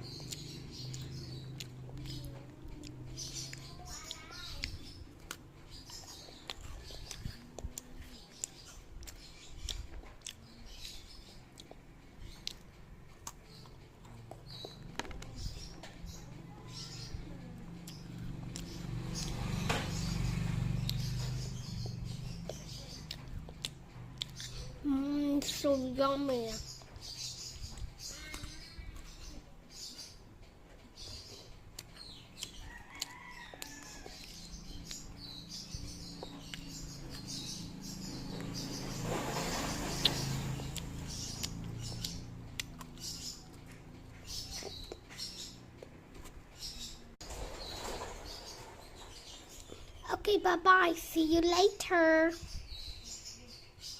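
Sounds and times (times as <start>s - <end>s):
child chewing food: 0.0s - 19.5s, 20.2s - 25.9s, 30.2s - 37.4s, 38.3s - 47.0s.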